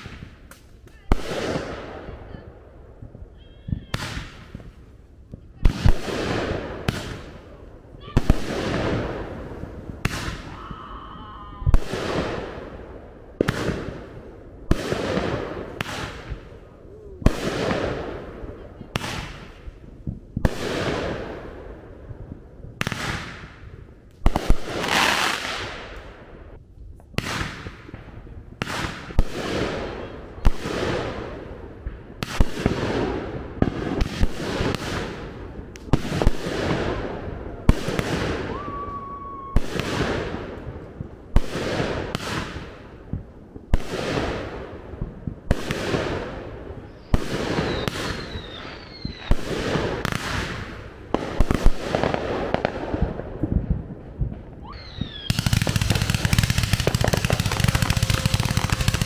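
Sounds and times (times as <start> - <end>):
firework bangs: 0.0 - 59.0
rising firework whistle: 38.2 - 40.1, 46.9 - 49.4, 54.6 - 59.0.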